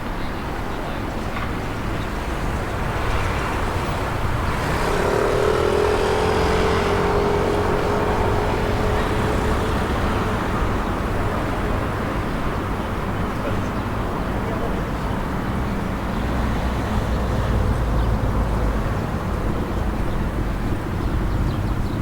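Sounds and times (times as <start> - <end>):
low traffic rumble: 0.0 - 22.0
vehicle engine passing: 2.0 - 12.8.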